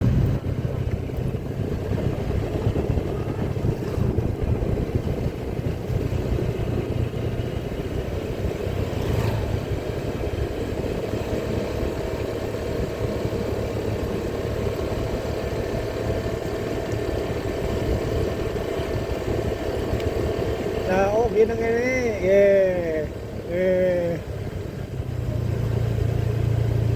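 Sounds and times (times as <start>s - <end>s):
road and wind noise: 0.0s - 26.9s
vehicle engine running: 0.0s - 26.9s.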